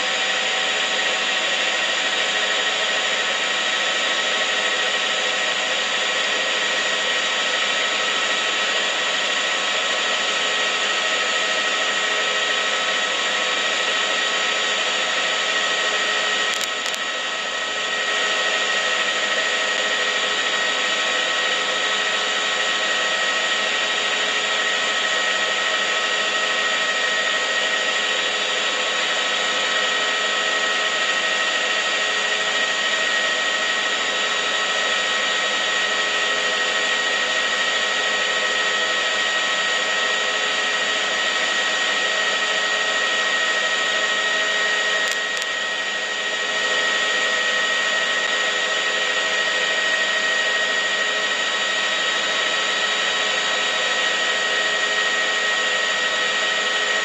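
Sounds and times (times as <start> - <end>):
steady whirring with whine: 0.0 - 57.0
tiny click: 16.5 - 17.1, 45.0 - 45.6.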